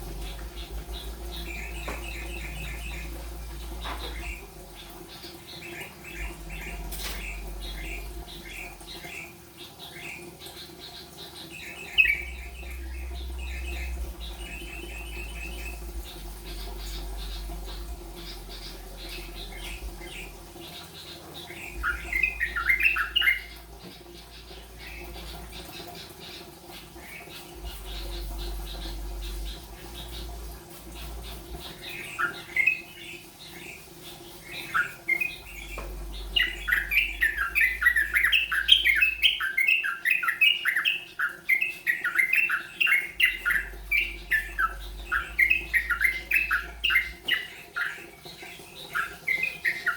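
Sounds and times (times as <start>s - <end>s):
steady low hum: 0.0s - 39.4s
bird chirping song: 0.0s - 49.9s.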